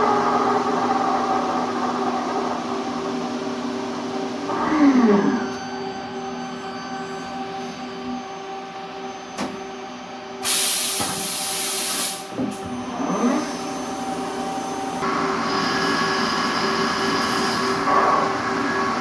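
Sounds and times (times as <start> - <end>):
loud hiss: 10.4 - 12.3
machine tool whining: 12.4 - 19.0.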